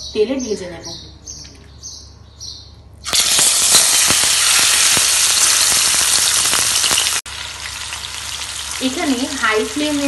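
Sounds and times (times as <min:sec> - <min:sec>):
prawns sizzling in hot oil: 0:03.1 - 0:10.0.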